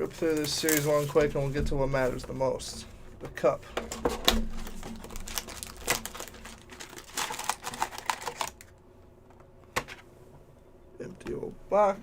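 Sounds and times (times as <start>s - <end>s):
packaging tearing and crinkling: 0.2s - 1.2s, 4.3s - 8.7s.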